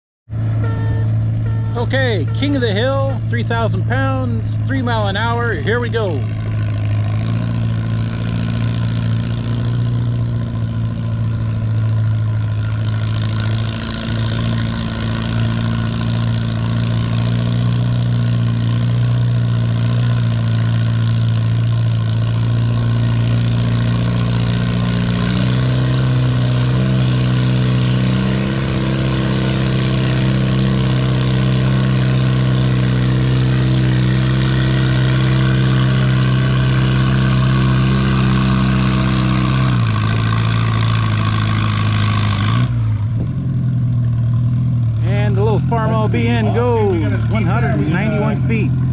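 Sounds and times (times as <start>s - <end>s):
tractor engine running hard: 0.3s - 48.9s.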